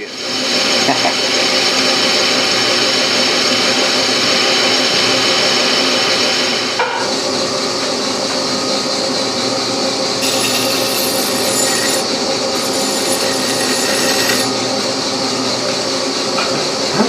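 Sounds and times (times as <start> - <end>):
lathe tool squealing chatter: 10.2 - 15.6.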